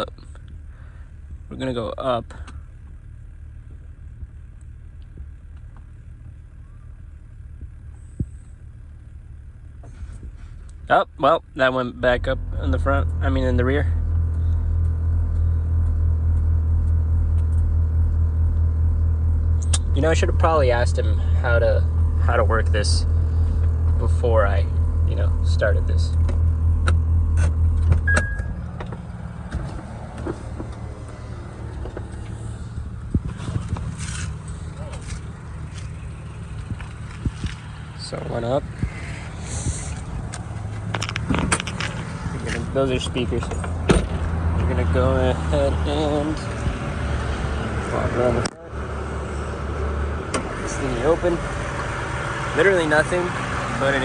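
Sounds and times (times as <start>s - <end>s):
car engine idling: 0.0s - 54.0s
sharp click: 19.6s - 19.9s
short electronic beep: 28.0s - 28.6s.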